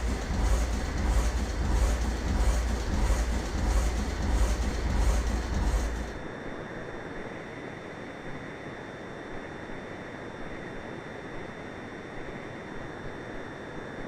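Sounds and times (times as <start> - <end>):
low aircraft engine rumble: 0.0 - 6.5.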